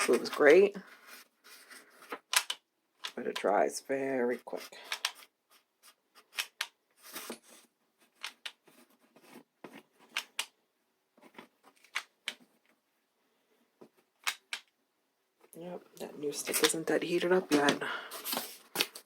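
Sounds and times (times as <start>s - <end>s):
craft pieces handled and pressed: 0.0s - 3.6s, 4.6s - 10.6s, 11.2s - 12.8s, 13.8s - 14.8s, 16.4s - 19.0s.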